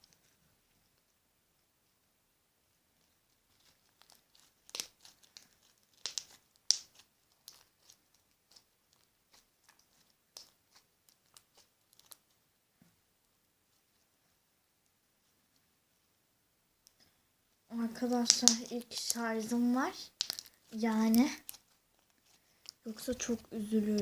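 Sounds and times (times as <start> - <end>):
crackling pops of slime: 3.6 - 12.2, 18.2 - 19.3, 20.1 - 21.6
slime squished by hand: 3.6 - 12.2, 18.0 - 24.0.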